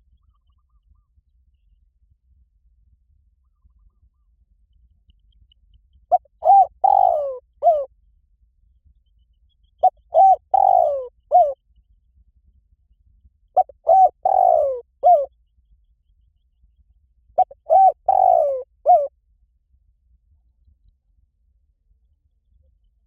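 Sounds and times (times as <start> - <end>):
dove cooing: 6.1 - 7.9, 9.8 - 11.6, 13.6 - 15.3, 17.4 - 19.1.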